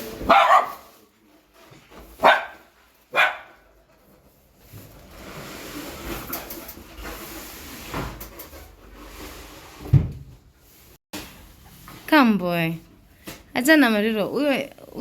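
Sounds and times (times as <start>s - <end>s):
dog barking: 0.2s - 1.0s, 2.2s - 3.7s.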